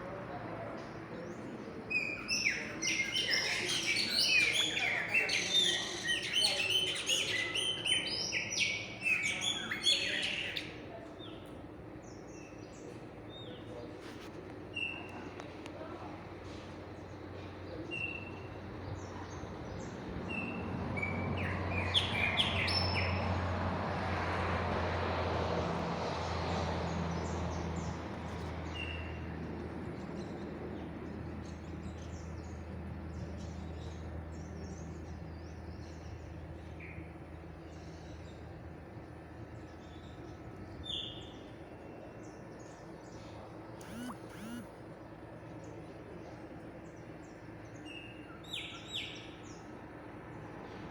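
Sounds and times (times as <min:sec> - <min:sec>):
vehicle passing: 0:20.2 - 0:29.8.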